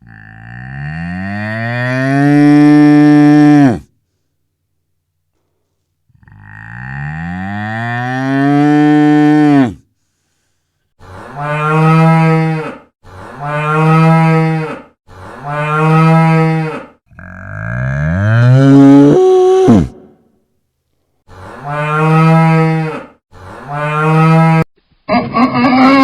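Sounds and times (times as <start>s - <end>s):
cow mooing: 0.0s - 3.8s, 6.2s - 9.8s, 11.3s - 20.1s, 21.6s - 24.7s.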